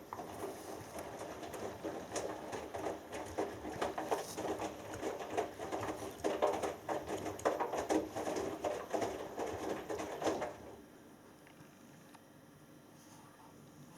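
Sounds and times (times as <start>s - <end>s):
washing machine drum sloshing: 0.0s - 10.9s.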